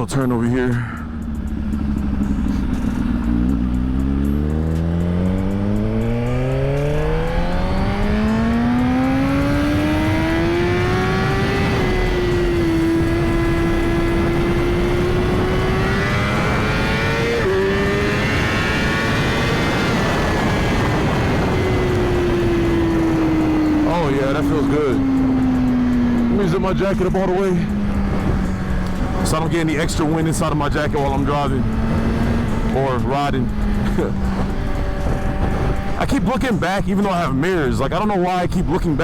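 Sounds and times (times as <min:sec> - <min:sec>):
motorcycle engine accelerating hard: 0:00.9 - 0:38.0
wind rushing over microphone: 0:06.9 - 0:36.5.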